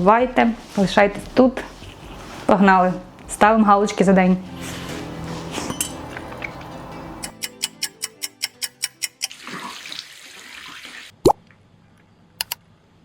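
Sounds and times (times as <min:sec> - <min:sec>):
music: 0:03.6 - 0:09.5
fast evenly spaced ticks: 0:07.2 - 0:09.3.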